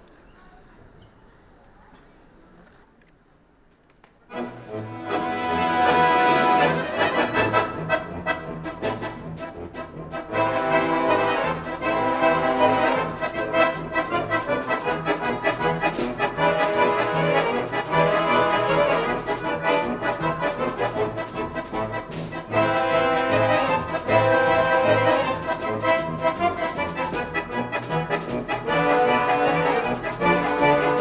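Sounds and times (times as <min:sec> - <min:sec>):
accordion ensemble playing chords: 0:04.3 - 0:31.0.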